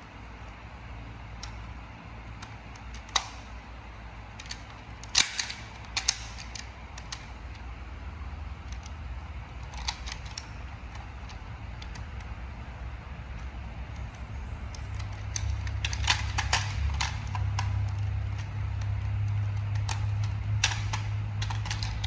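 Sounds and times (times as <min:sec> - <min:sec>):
steady low hum: 0:00.0 - 0:22.0
plastic toy clicks and snaps: 0:01.4 - 0:01.6, 0:02.3 - 0:03.6, 0:04.4 - 0:07.7, 0:08.6 - 0:12.4, 0:13.2 - 0:22.0.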